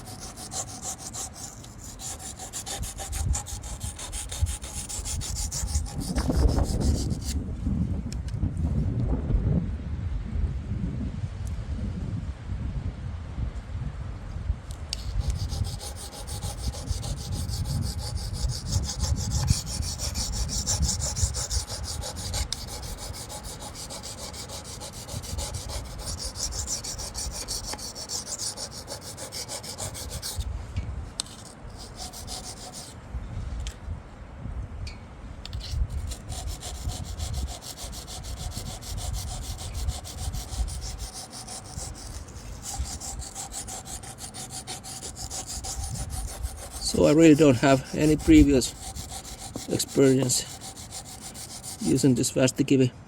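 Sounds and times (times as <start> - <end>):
knife scraping on sharpening stone: 15.0 - 30.4, 35.5 - 52.1.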